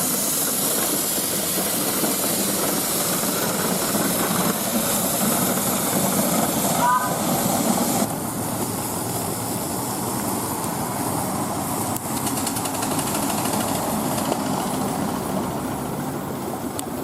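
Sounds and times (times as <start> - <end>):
train rumble: 0.0 - 17.0
fast even rattle: 12.2 - 14.6.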